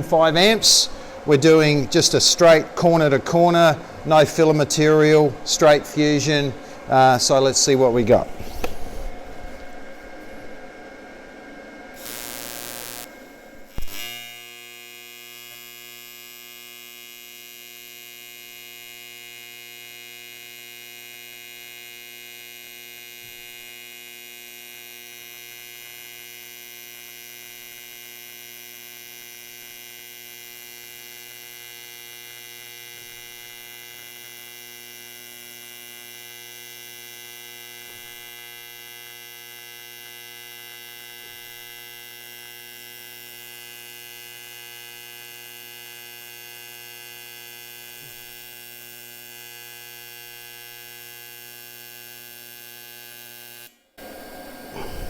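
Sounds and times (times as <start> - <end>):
welding arc buzz: 0.0 - 55.0
welding arc hiss and crack: 11.9 - 55.0.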